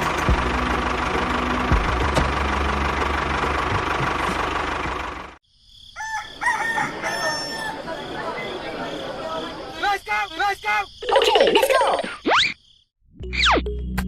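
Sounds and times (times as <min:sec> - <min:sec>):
rooster crowing: 0:05.8 - 0:09.4.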